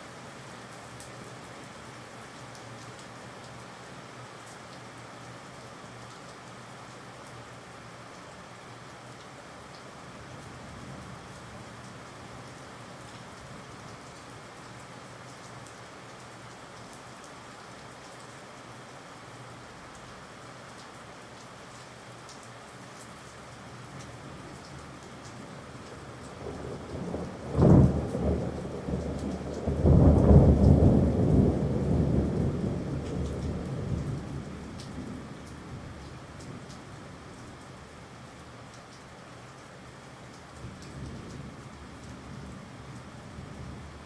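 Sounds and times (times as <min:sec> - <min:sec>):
steady rain falling: 0:00.0 - 0:44.0
thunderclap crack and rumble: 0:26.4 - 0:35.2.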